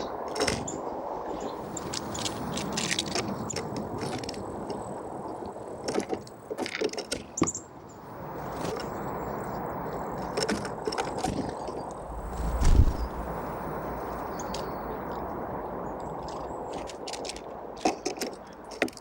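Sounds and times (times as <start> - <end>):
birds pecking at seeds: 1.7 - 4.4, 16.0 - 19.0
outdoor background hiss: 11.9 - 16.0.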